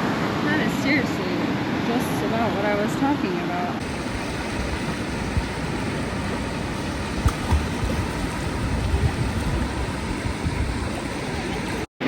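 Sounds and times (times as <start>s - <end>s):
low thumps: 3.8s - 10.9s
surf washing over reef: 3.8s - 11.9s.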